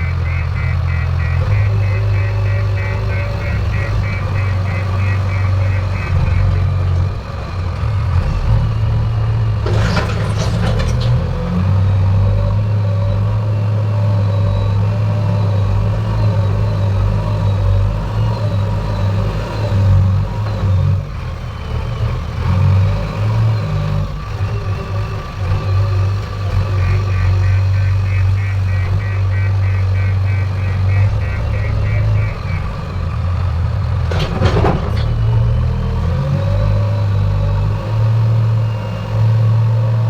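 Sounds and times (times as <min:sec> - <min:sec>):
heavy diesel engine under load: 0:00.0 - 0:40.0
clattering: 0:09.6 - 0:11.4, 0:34.0 - 0:35.5.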